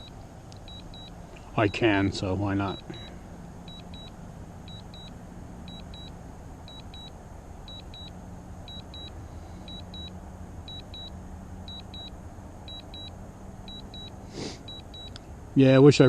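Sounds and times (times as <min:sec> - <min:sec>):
steady low hum: 0:00.0 - 0:16.0
remote controller double beeps: 0:00.7 - 0:01.1, 0:03.7 - 0:04.1, 0:04.7 - 0:05.1, 0:05.7 - 0:06.1, 0:06.7 - 0:07.1, 0:07.7 - 0:08.1, 0:08.7 - 0:09.1, 0:09.7 - 0:10.1, 0:10.7 - 0:11.1, 0:11.7 - 0:12.1, 0:12.7 - 0:13.1, 0:13.7 - 0:15.2.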